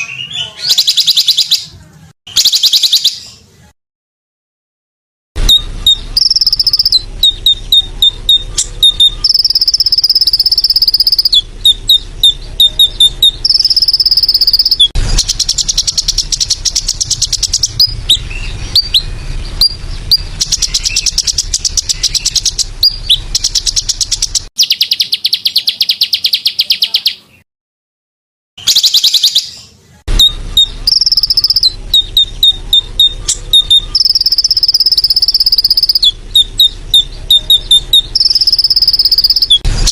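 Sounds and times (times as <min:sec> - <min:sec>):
songbirds chirping and whistling: 0:00.0 - 0:03.7, 0:05.4 - 0:27.4, 0:28.6 - 0:39.9
insect trill: 0:09.2 - 0:11.3, 0:12.6 - 0:18.0, 0:30.9 - 0:32.8, 0:33.8 - 0:39.6.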